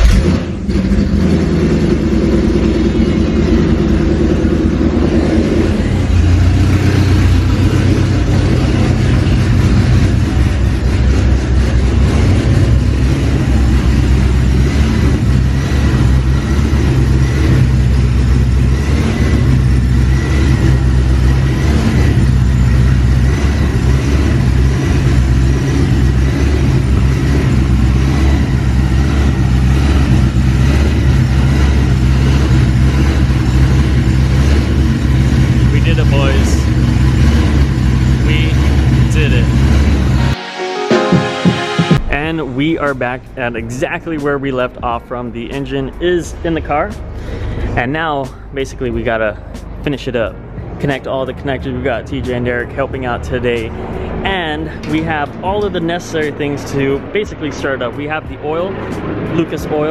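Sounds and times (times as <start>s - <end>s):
loud car engine running: 0.0s - 40.4s, 41.9s - 59.9s.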